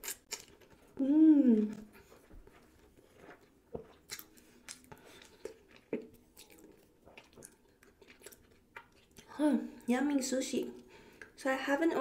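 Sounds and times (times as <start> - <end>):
wet chewing mouth sounds: 0.0 - 9.3.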